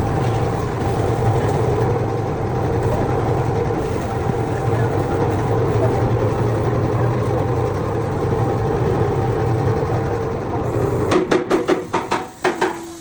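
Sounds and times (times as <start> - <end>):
machine humming: 0.0 - 13.0
sharp knocks: 11.1 - 12.8.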